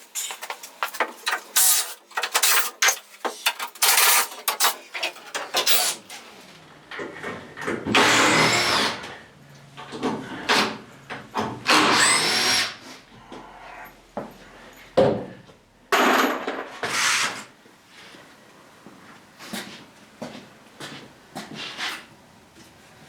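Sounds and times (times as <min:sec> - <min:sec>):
power drill whirring: 0:07.9 - 0:09.1, 0:11.6 - 0:12.8.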